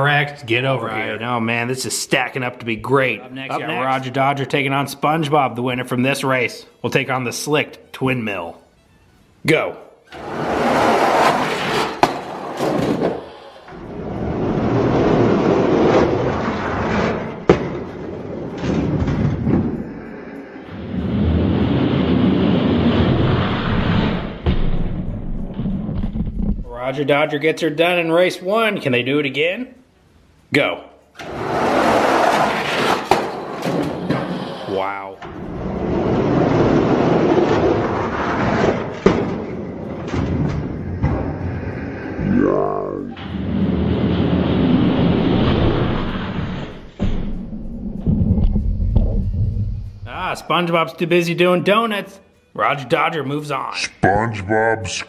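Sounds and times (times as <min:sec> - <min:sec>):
toy trucks rolling and rattling: 0:10.2 - 0:24.4, 0:31.2 - 0:42.1.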